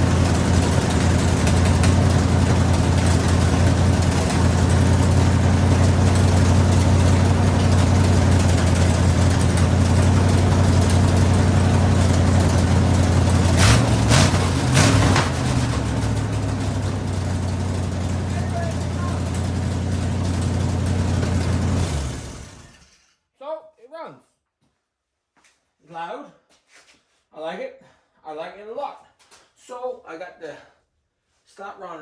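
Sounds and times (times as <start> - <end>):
truck engine idling and revving: 0.0 - 22.8.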